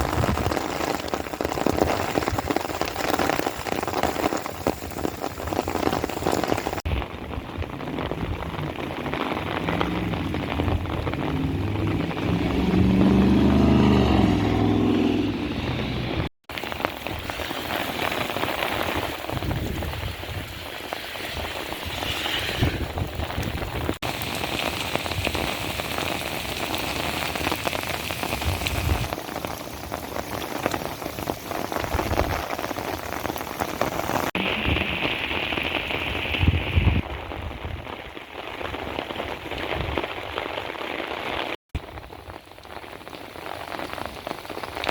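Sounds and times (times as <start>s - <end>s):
heavy rain pattering: 0.0s - 44.9s
vehicle passing: 9.4s - 16.3s.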